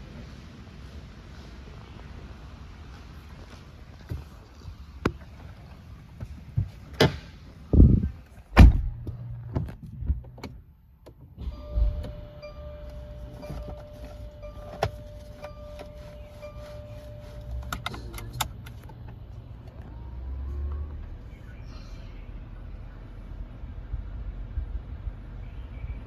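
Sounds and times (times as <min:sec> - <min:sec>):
clicks from car handling: 0:06.2 - 0:07.4, 0:12.9 - 0:19.9
heavy thumps: 0:06.2 - 0:10.3
short chime: 0:11.5 - 0:17.7.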